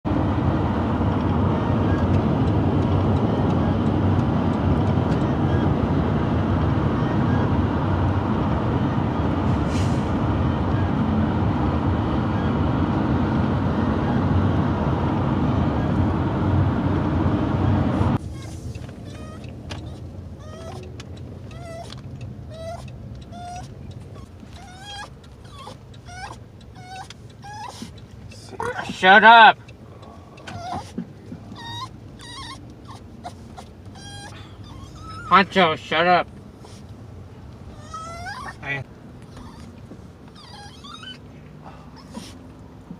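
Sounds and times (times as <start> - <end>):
road and engine noise in a van: 0.0 - 42.9
dog whining: 4.9 - 6.0, 6.7 - 7.8, 13.7 - 14.3, 18.2 - 29.0, 30.1 - 35.5, 37.6 - 42.5.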